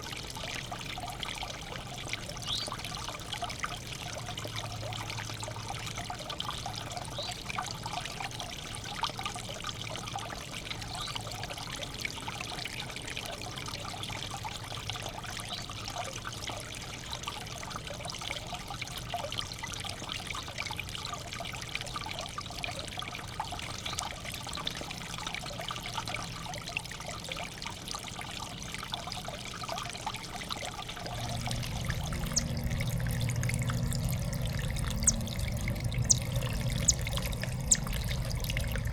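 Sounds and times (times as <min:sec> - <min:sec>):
water trickling into bird bath: 0:00.0 - 0:38.9
low hum: 0:30.9 - 0:38.9.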